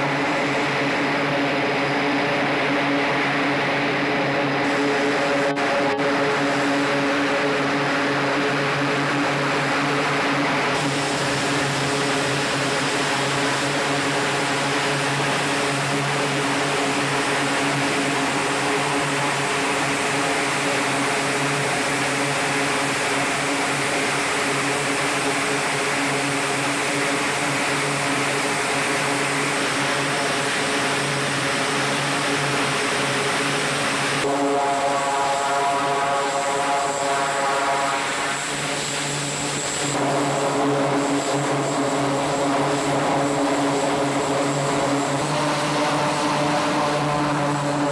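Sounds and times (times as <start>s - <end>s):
aircraft engine drone: 0.0s - 47.9s.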